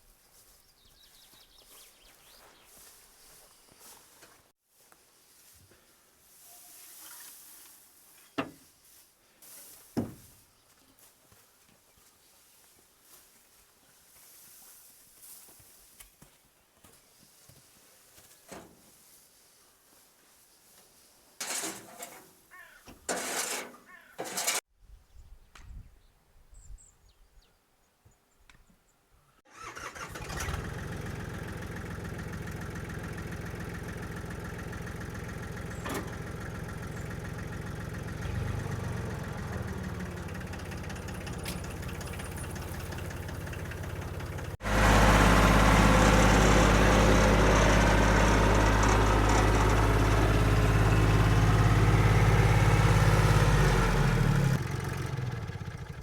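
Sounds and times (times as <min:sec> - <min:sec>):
tractor diesel engine running: 0:21.4 - 0:22.2, 0:23.1 - 0:24.6, 0:29.5 - 0:56.0.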